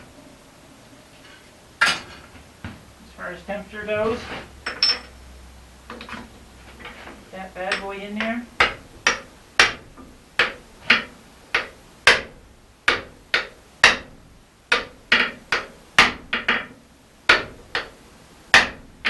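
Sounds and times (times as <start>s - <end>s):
hammer striking steel: 7.7s - 14.1s.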